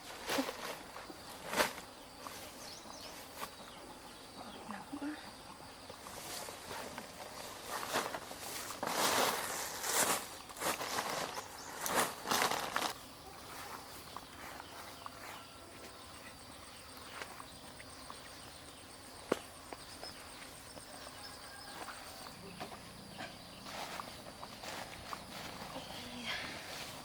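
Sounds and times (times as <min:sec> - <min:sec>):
faint high insect trill: 0:00.0 - 0:27.0
footsteps through dry leaves: 0:06.2 - 0:15.4, 0:23.6 - 0:27.0.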